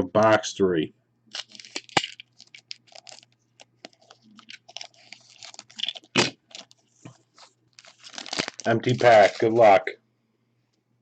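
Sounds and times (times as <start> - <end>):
foil wrapper tearing and crackling: 1.3 - 6.8, 7.7 - 9.8.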